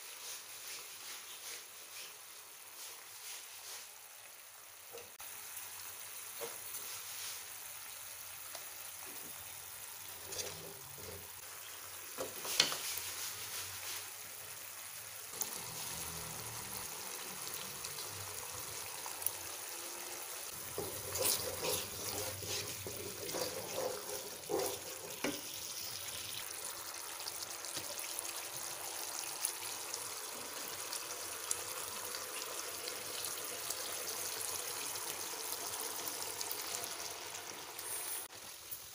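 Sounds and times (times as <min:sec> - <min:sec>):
paste sizzling in wok: 0:00.0 - 0:38.9
wooden spatula scraping pan: 0:10.2 - 0:11.3, 0:12.2 - 0:14.1, 0:20.5 - 0:26.0.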